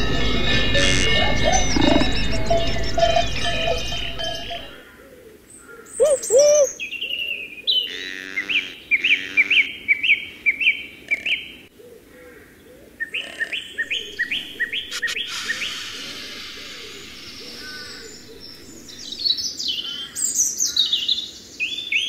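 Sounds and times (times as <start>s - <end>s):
outdoor ambience hiss: 9.6s - 22.0s.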